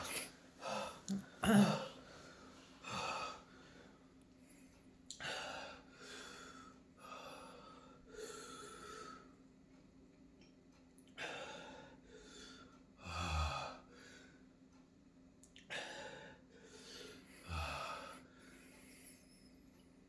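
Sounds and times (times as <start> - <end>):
man breathing hard: 0.0 - 3.9.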